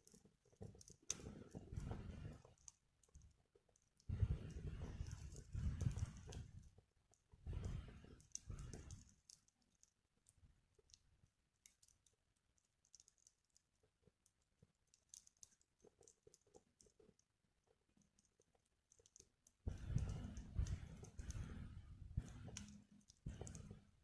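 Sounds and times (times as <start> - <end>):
wood fire crackling: 0.2 - 3.2, 4.1 - 6.8, 7.4 - 9.4, 19.1 - 24.0.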